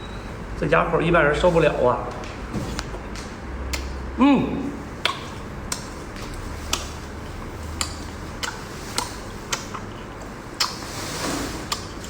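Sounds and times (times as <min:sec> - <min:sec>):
wet chewing clicks: 0:05.0 - 0:12.0.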